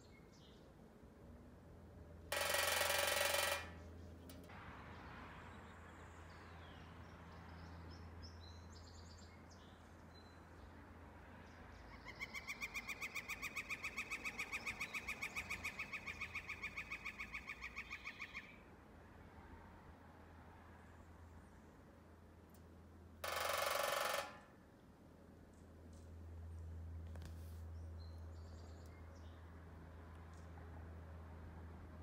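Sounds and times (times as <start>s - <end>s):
woodpecker drumming on metal: 2.3s - 3.9s, 23.2s - 24.6s.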